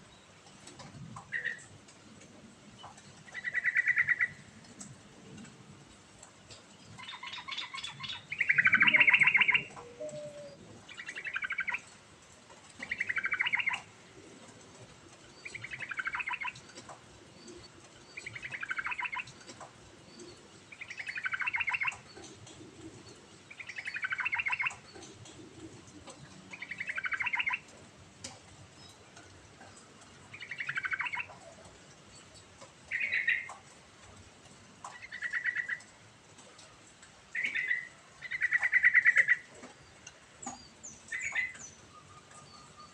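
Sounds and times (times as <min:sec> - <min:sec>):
bulbul singing: 0:07.0 - 0:11.8.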